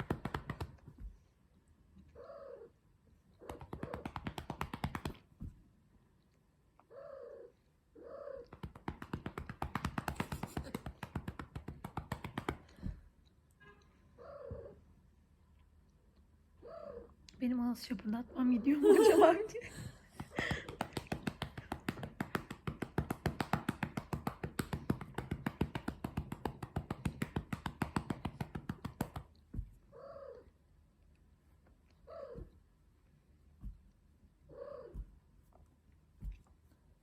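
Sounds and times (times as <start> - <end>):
rapid patting on a cat: 0.0 - 1.3, 3.4 - 5.8, 8.4 - 13.2, 19.8 - 29.9, 32.2 - 37.0.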